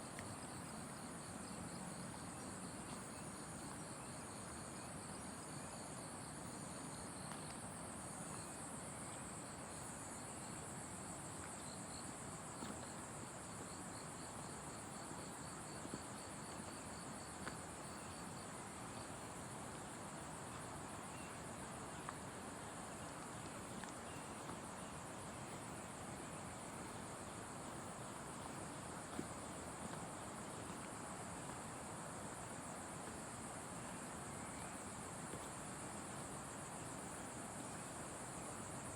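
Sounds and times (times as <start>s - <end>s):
rapid pulsing insect chirps: 11.5s - 38.9s
shrill insect chorus: 11.5s - 38.9s.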